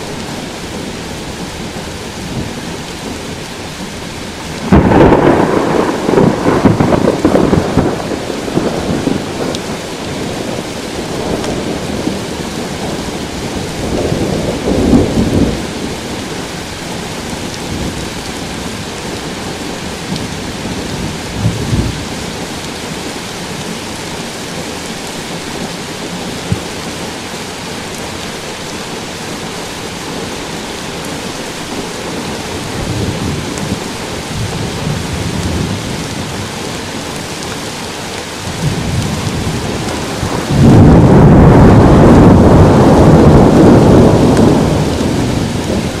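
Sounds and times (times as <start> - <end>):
rolling thunder: 0.0 - 23.1, 31.8 - 36.7, 38.4 - 46.0
steady rain: 0.0 - 46.0.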